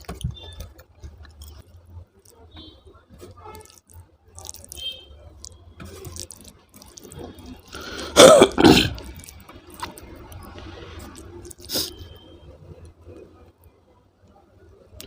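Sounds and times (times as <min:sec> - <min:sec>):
soft chewing: 0:00.0 - 0:08.2, 0:08.9 - 0:15.0
man coughing: 0:08.1 - 0:09.0.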